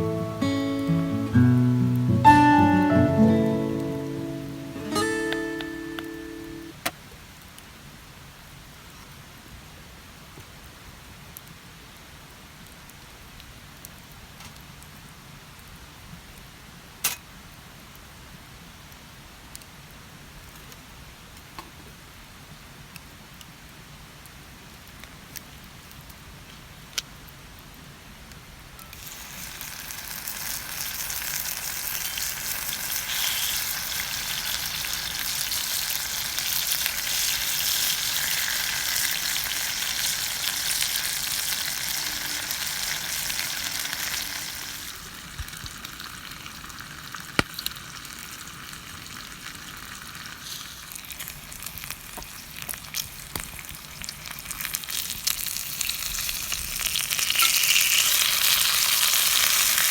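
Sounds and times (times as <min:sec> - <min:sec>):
food sizzling in a skillet: 0:00.0 - 0:06.8, 0:28.9 - 0:59.9.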